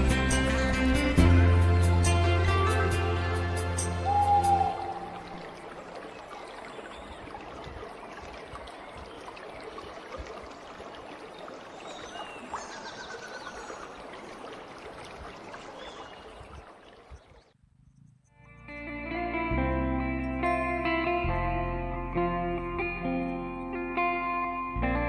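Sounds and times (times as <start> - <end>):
running water trickling: 1.8 - 17.6.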